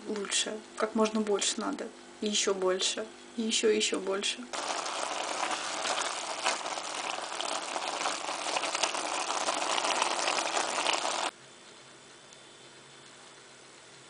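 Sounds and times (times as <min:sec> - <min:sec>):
meat sizzling in a pan: 0:04.6 - 0:11.3.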